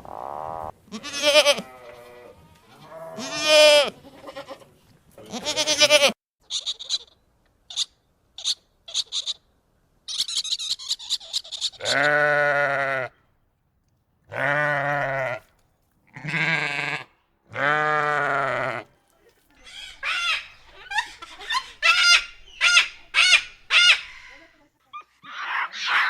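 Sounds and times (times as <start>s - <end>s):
dense high twittering: 0.0s - 0.7s, 19.6s - 24.5s
pitched animal call: 0.0s - 2.1s, 16.1s - 18.9s, 19.6s - 24.5s
animal bleating: 0.3s - 6.8s, 11.7s - 13.2s, 14.3s - 18.9s, 19.6s - 24.5s.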